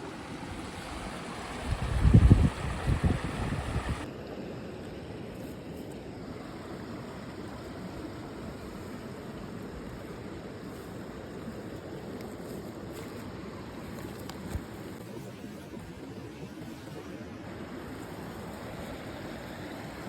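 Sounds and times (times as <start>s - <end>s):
rushing hiss of wind: 0.0s - 4.1s, 17.4s - 20.0s
small waves on shore: 0.0s - 20.0s
wind buffeting microphone: 0.7s - 4.1s.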